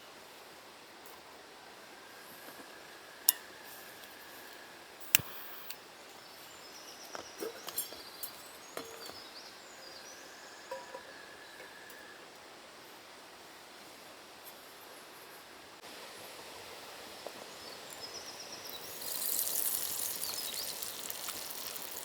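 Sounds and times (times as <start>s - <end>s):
faint outdoor background: 0.0s - 22.0s
faint high chirps: 17.6s - 22.0s.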